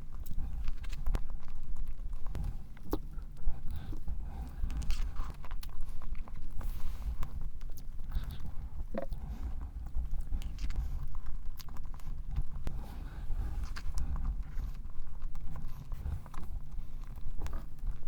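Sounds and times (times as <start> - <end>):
chewing soft cake: 0.0 - 18.0
wet mouth clicks: 8.3 - 9.4.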